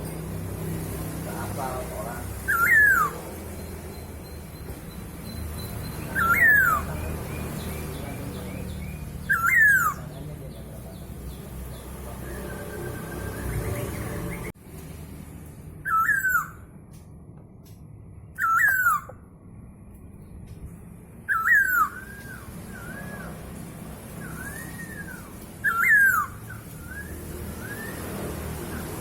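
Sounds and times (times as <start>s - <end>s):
bird whistled calls: 2.3s - 10.3s, 12.2s - 14.5s, 15.8s - 16.7s, 18.3s - 19.2s, 21.2s - 29.0s
soft whistled bird notes: 2.4s - 11.5s, 21.2s - 23.5s, 24.1s - 29.0s.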